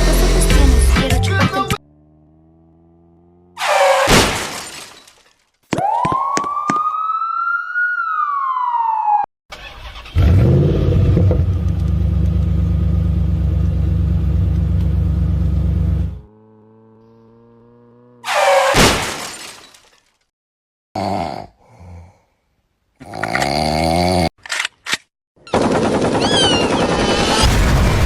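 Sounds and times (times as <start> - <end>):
vehicle engine rumble: 0.0 - 3.6, 9.6 - 18.2
police siren wail: 5.7 - 9.3.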